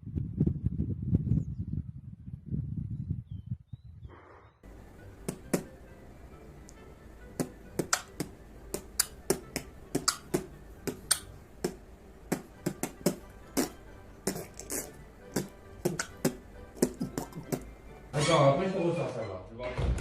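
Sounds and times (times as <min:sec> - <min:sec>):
low steady hum: 0:04.7 - 0:18.1
sharp clicks: 0:11.0 - 0:11.8.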